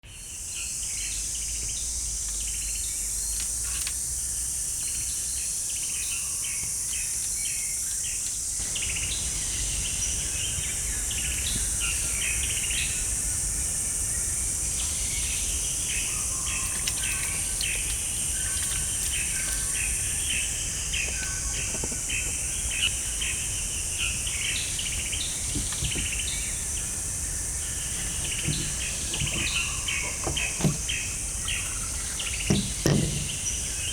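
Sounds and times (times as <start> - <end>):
insects droning: 0.0 - 33.9
birds chirping and calling: 14.8 - 33.9
faint clicks and knocks: 27.8 - 33.5.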